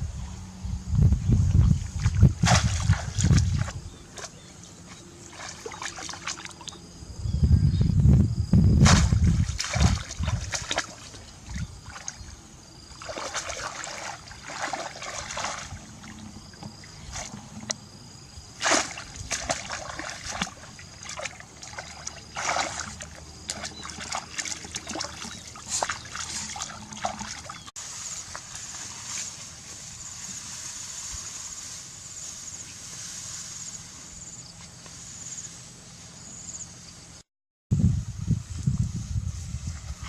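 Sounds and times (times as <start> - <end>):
water splashing and sloshing: 1.6 - 6.8, 8.8 - 17.8, 18.4 - 30.8.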